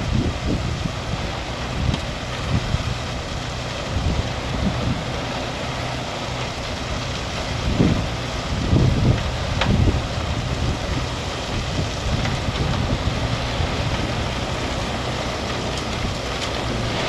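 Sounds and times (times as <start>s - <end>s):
dump truck engine running: 0.0s - 17.0s
wind buffeting microphone: 0.0s - 17.0s.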